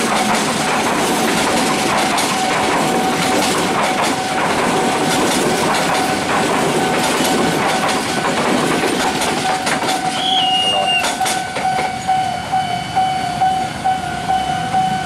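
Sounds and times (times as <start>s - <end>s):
train wheels clattering on rails: 0.0s - 12.3s
steady high tone: 10.0s - 15.0s.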